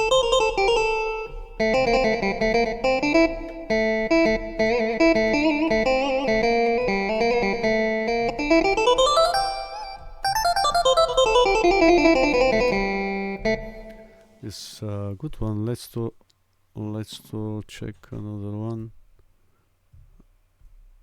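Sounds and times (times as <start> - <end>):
plucked lute melody: 0.0 - 14.2.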